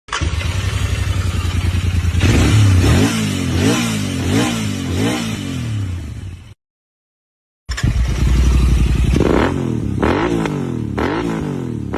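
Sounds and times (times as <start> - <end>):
motorcycle engine revving: 0.1 - 6.6, 7.7 - 11.9
motorcycle engine idling: 0.2 - 2.8, 7.8 - 10.0.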